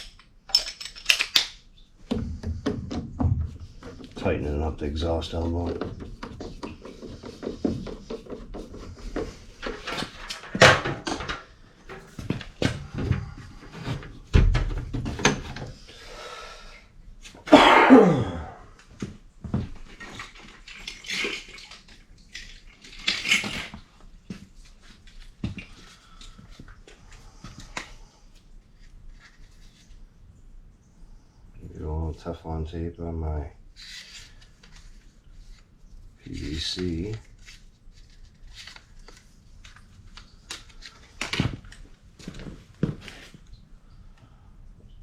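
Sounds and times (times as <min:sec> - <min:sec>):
tools knocking on plastic pipe parts: 0:02.0 - 0:04.2, 0:05.6 - 0:15.7.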